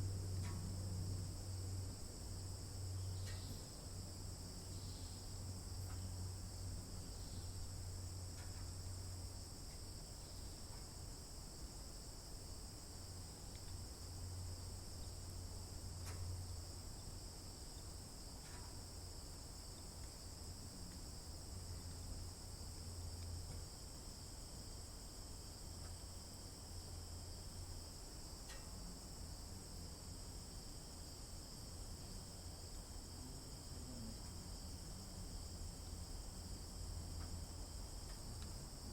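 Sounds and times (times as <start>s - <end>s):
crickets chirping: 0.0s - 38.9s
low steady hum: 0.0s - 38.9s
faint ticks: 0.1s - 1.1s, 3.0s - 3.8s, 4.7s - 6.4s, 7.1s - 9.0s, 9.6s - 11.1s, 13.0s - 24.0s, 25.1s - 26.7s, 27.3s - 29.6s, 33.8s - 34.9s, 35.7s - 38.9s.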